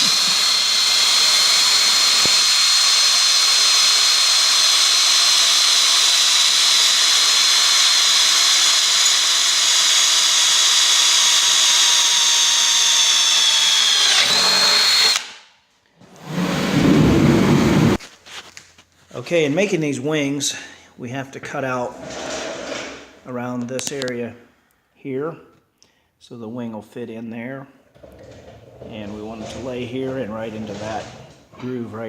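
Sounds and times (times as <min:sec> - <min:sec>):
cordless drill whining through metal: 0:00.0 - 0:15.4.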